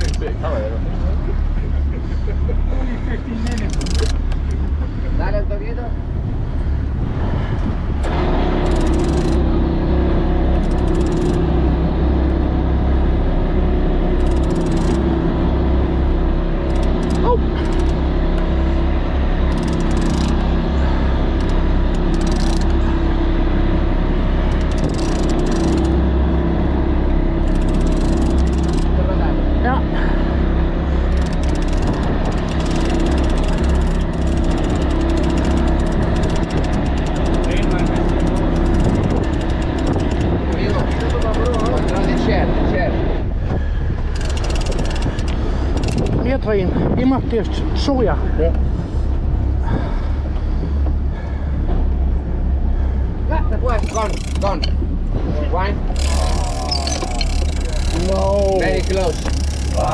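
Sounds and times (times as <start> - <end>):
fast clicking: 0.0 - 0.4, 3.4 - 4.7, 8.6 - 9.6, 10.5 - 12.6, 14.0 - 15.6, 16.6 - 18.6, 19.3 - 23.1, 24.4 - 26.2, 27.3 - 29.0, 31.0 - 42.4, 44.1 - 46.2, 53.6 - 54.8, 55.9 - 59.9
fast fine ticking: 0.0 - 0.4, 3.4 - 4.6, 8.5 - 29.2, 30.9 - 42.4, 44.1 - 46.4, 53.5 - 54.8, 55.9 - 59.9
boat engine running: 0.0 - 59.9.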